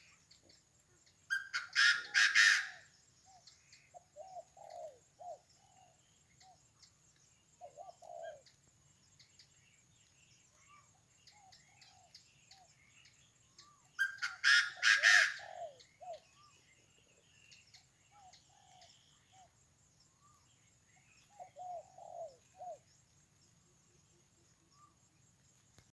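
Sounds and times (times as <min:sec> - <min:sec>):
loud harsh bird call: 0:01.3 - 0:02.9, 0:14.0 - 0:15.8.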